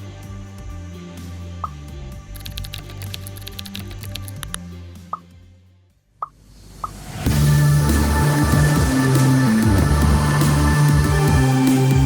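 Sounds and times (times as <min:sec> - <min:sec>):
background music: 0:07.3 - 0:12.0.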